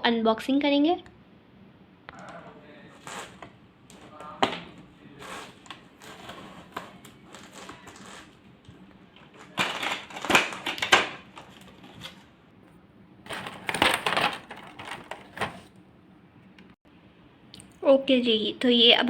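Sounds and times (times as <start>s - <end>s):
packaging crinkling and rustling: 2.2s - 12.4s, 13.3s - 15.8s.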